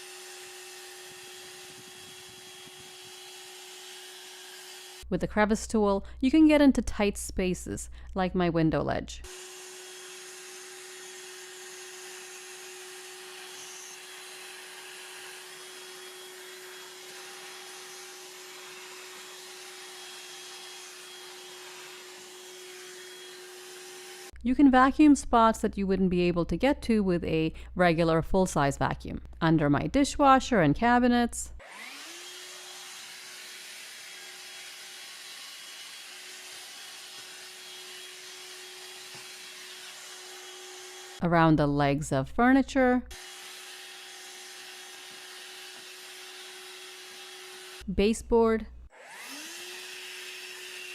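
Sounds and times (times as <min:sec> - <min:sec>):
handheld vacuum running: 0:00.0 - 0:05.1, 0:09.3 - 0:24.4, 0:31.6 - 0:41.2, 0:43.1 - 0:47.9, 0:48.9 - 0:50.9.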